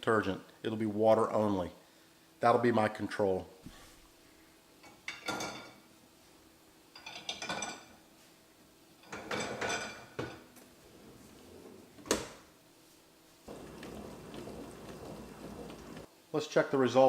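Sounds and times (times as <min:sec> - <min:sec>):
plates and dish rack clinking: 0:07.0 - 0:07.9, 0:09.0 - 0:10.5.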